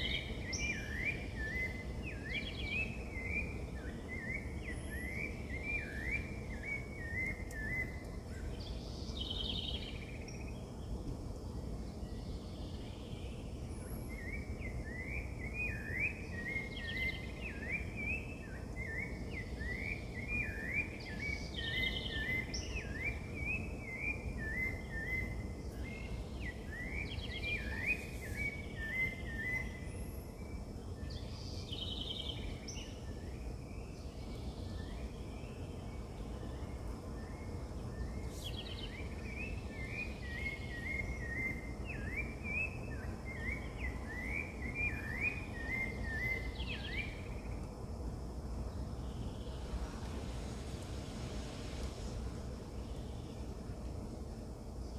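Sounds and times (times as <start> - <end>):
low background noise: 0.0 - 54.9
birds chirping: 12.0 - 54.9.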